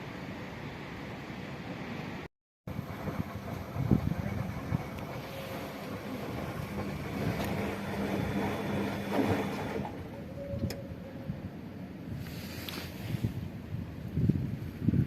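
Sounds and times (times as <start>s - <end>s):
washing machine humming: 2.7s - 11.2s
click: 10.6s - 10.8s.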